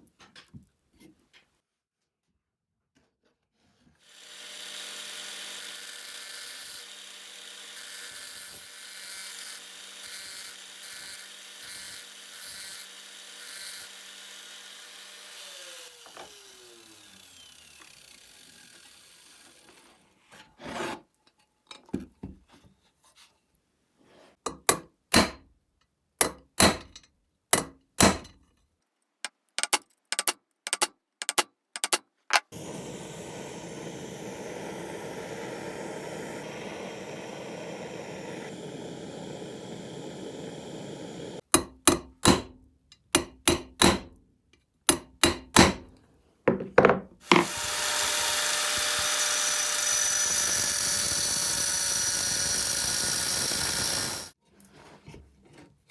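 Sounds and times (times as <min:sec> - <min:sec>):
electric power tool running: 0:04.1 - 0:19.8, 0:32.5 - 0:41.4, 0:47.2 - 0:54.4
hand scraping on metal: 0:29.6 - 0:32.5.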